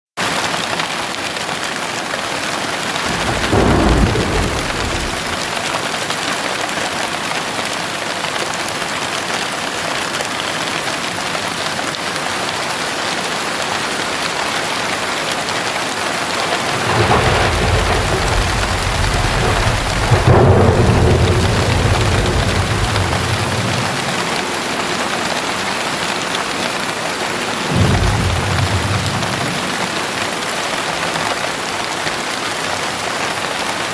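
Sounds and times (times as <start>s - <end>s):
heavy rain falling: 0.2s - 33.9s
thunder rumbling: 3.0s - 5.9s, 16.2s - 30.9s.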